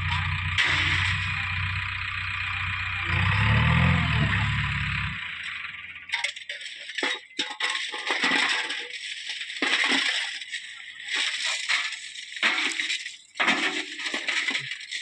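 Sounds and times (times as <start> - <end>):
heavy diesel engine working: 0.0 - 7.0
stones rattling into truck body: 0.2 - 1.7, 6.0 - 15.0.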